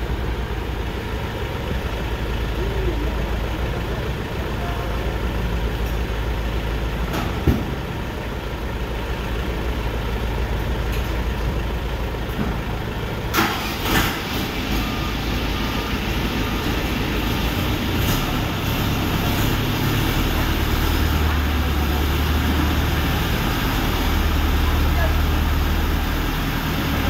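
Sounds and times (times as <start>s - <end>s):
tractor engine rumbling: 0.0s - 27.0s.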